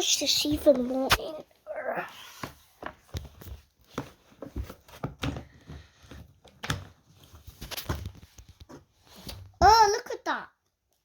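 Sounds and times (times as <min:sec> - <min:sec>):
knocks and clicks of plastic parts: 0:02.8 - 0:07.0.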